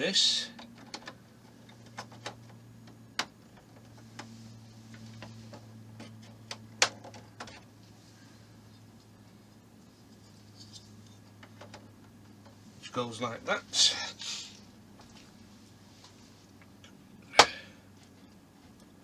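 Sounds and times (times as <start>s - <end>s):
plastic parts clicking and tapping: 0.6s - 4.3s, 4.9s - 7.7s, 11.4s - 12.6s.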